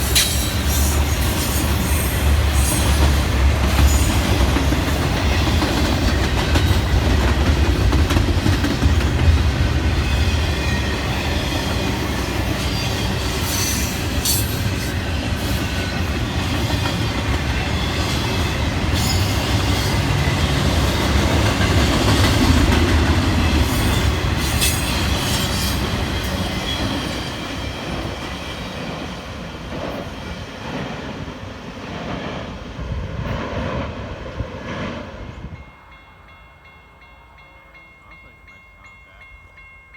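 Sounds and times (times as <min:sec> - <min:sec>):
train wheel clacks: 0:00.0 - 0:31.2
train rumbling past: 0:00.0 - 0:39.9.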